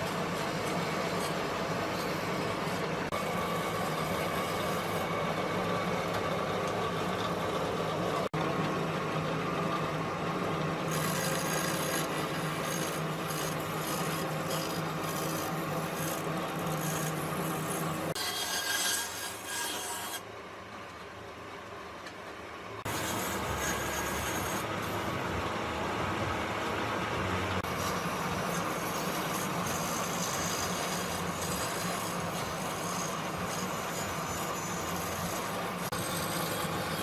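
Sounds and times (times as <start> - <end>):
power tool grinding wood: 10.9 - 20.2, 22.9 - 25.0, 27.6 - 37.0.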